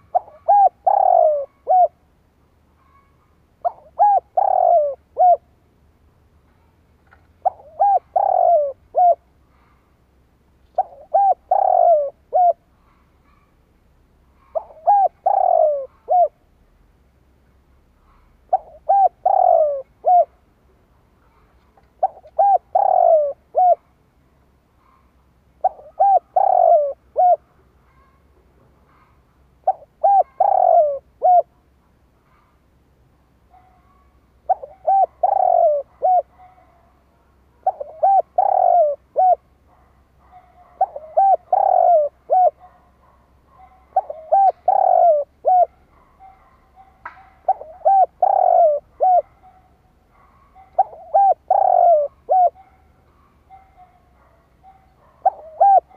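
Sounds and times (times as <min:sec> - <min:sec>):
dove cooing: 0:00.0 - 0:02.1, 0:02.8 - 0:05.6, 0:07.1 - 0:09.8, 0:10.6 - 0:13.5, 0:14.4 - 0:16.5, 0:18.0 - 0:20.4, 0:21.3 - 0:24.0, 0:24.8 - 0:28.2, 0:28.8 - 0:31.5, 0:33.5 - 0:55.9.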